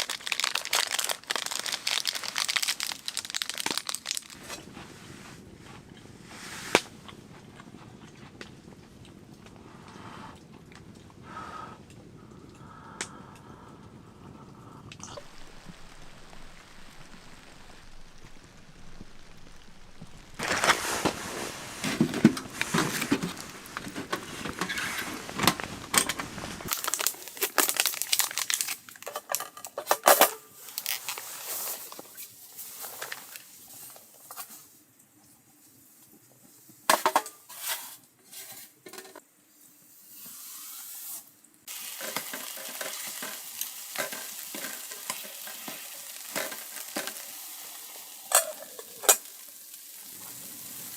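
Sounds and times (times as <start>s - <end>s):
food sizzling in a pan: 15.2s - 21.9s, 39.6s - 50.9s
utensil stirring and knocking pan: 41.9s - 47.2s.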